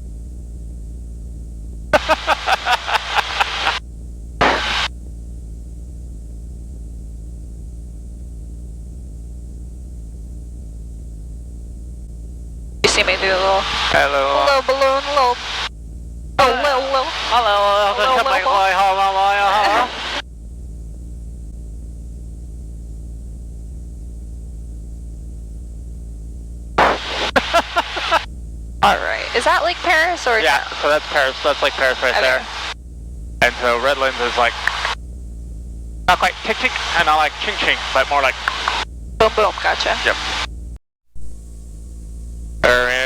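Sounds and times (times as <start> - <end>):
light aircraft engine droning: 0.0 - 43.0
short burst of noise: 4.4 - 4.9, 26.8 - 29.0.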